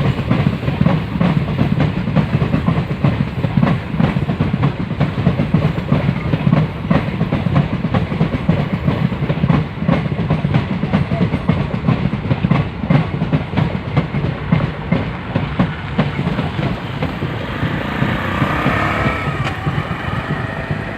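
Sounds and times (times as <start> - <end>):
train rumble: 0.0 - 20.9
train wheels clacking over rail joints: 0.0 - 20.9.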